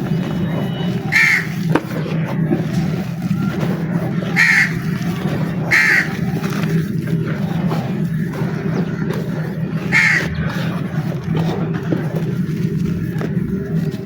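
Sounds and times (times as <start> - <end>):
bird harsh calls: 0.0 - 1.7, 2.7 - 11.7
steady low hum: 0.0 - 14.0.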